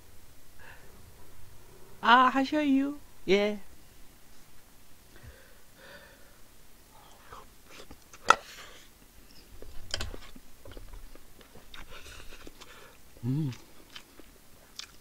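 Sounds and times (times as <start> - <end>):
chewing food: 9.3 - 15.0.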